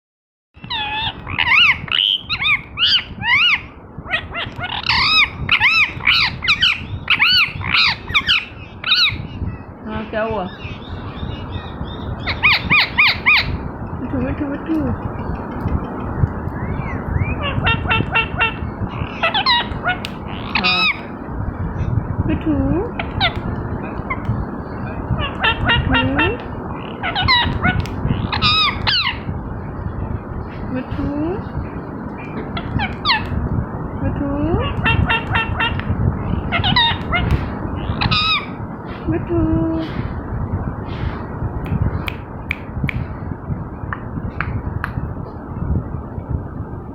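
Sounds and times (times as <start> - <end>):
low background rumble: 0.6 - 46.9
parakeet shrill calls: 0.7 - 9.6, 10.5 - 13.6, 16.6 - 21.1, 26.9 - 29.2, 36.4 - 38.6.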